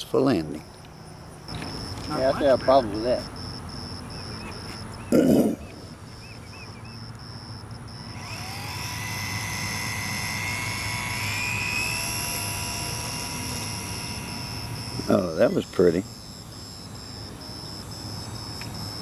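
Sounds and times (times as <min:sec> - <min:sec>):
model airplane motor whining: 0:07.9 - 0:19.0.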